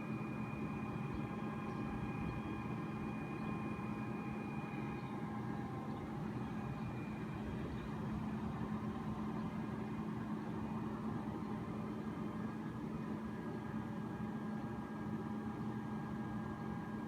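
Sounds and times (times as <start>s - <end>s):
truck engine running steadily: 0.0s - 17.0s.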